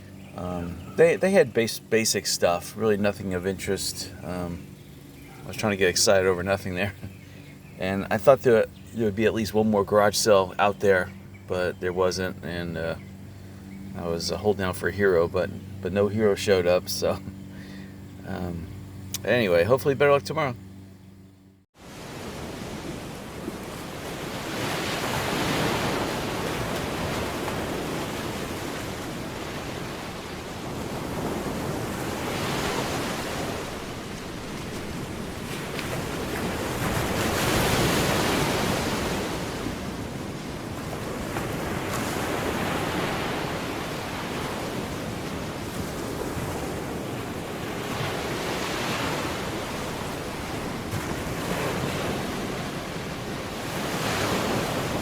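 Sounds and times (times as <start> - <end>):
ocean surf breaking: 0.0 - 20.6, 21.8 - 55.0.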